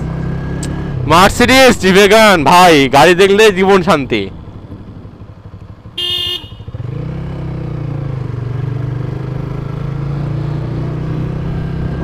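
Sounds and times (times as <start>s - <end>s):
motorcycle engine pulling away: 4.5s - 12.0s
vehicle horn beep: 6.0s - 6.8s.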